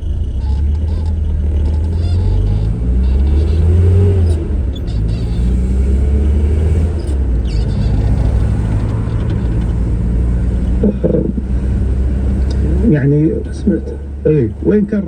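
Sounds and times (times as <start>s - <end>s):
car engine and road noise: 0.0s - 15.0s
person speaking: 10.7s - 11.6s, 12.4s - 15.0s.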